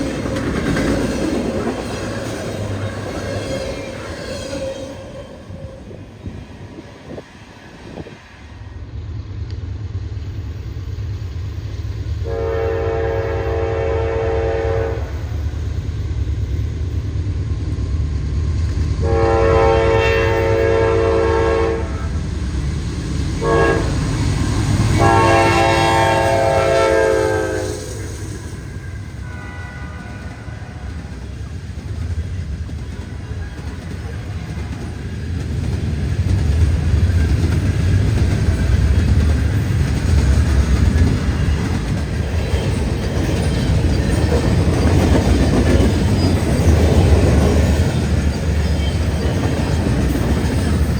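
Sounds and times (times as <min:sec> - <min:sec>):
passing train rumble: 0:00.0 - 0:50.9
locomotive air horn: 0:12.2 - 0:15.1, 0:19.0 - 0:22.2, 0:23.4 - 0:24.1, 0:24.9 - 0:28.2, 0:29.2 - 0:30.9.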